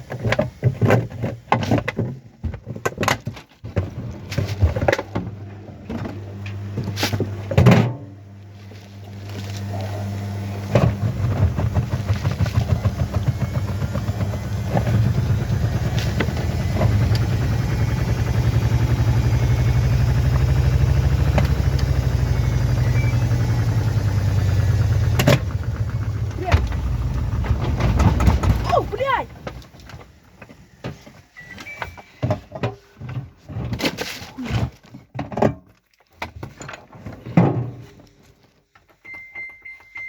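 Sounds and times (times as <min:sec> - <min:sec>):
washing machine motor humming: 0:09.1 - 0:30.2
drum turning flutter: 0:10.6 - 0:30.5.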